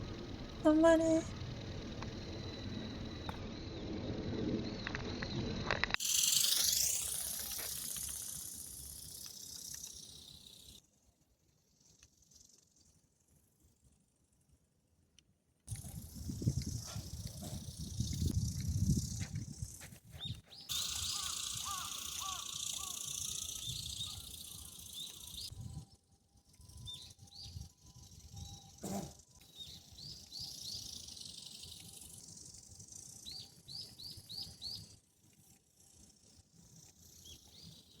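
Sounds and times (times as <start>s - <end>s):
steady outdoor hiss: 0.0s - 38.0s
small birds chirping: 15.7s - 25.6s, 26.6s - 38.0s.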